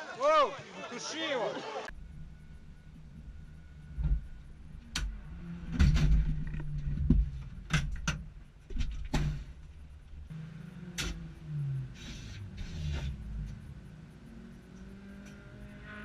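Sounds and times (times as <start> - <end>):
car engine and road hum: 1.9 - 16.0
sharp knocks and thumps: 4.9 - 9.7.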